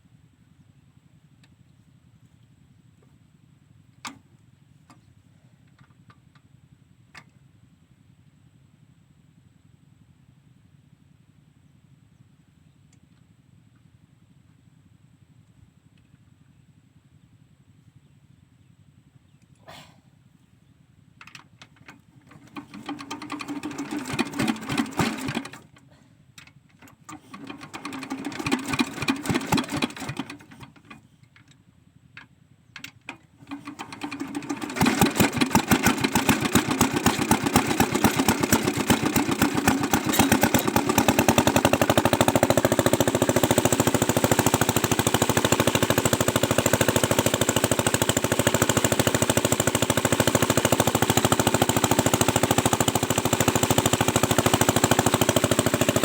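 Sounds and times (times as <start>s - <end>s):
diesel engine starting and running: 22.0s - 25.9s, 26.8s - 31.0s, 33.3s - 56.0s.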